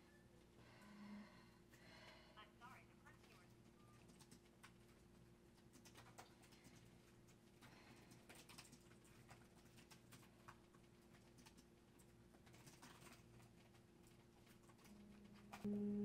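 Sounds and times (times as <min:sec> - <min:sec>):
low steady hum: 0:00.0 - 0:16.0
fingers typing on laptop keyboard: 0:03.1 - 0:15.7.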